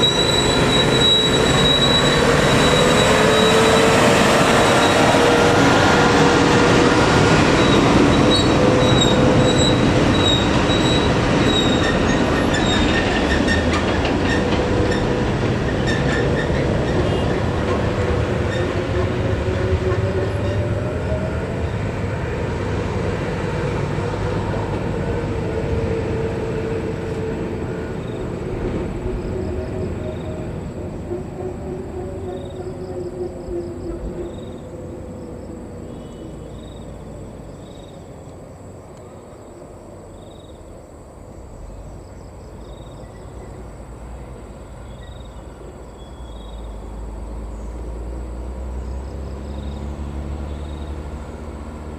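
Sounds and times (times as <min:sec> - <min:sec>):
wavering high-pitched squeal: 0:00.0 - 0:06.2
heavy vehicle rumbling: 0:00.0 - 0:38.2, 0:41.5 - 0:51.9.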